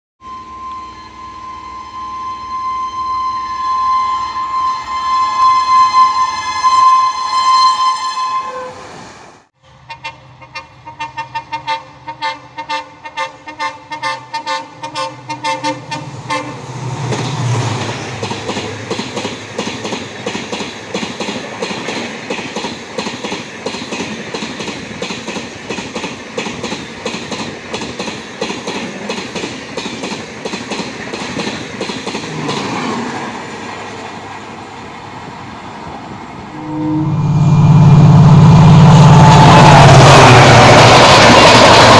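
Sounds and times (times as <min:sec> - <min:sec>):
locomotive horn: 0:00.2 - 0:08.9, 0:09.6 - 0:16.7, 0:36.5 - 0:41.2
train rushing past: 0:00.3 - 0:41.9
train wheels clattering: 0:17.0 - 0:33.2.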